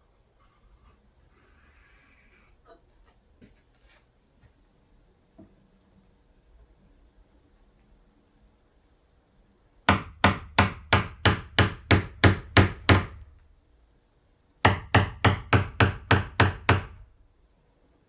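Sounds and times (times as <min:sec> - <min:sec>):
hammer striking chisel: 0:09.9 - 0:13.2, 0:14.7 - 0:17.0.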